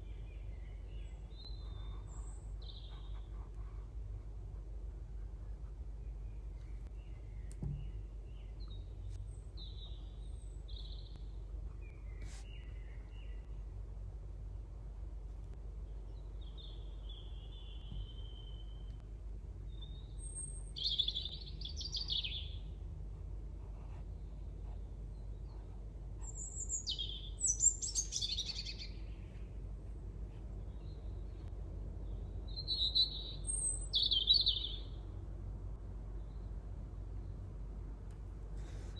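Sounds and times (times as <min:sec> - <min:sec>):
birds chirping: 0:00.0 - 0:14.0, 0:15.6 - 0:22.8, 0:24.0 - 0:35.2
low background hum: 0:00.0 - 0:38.9
soft knock: 0:07.6 - 0:07.9.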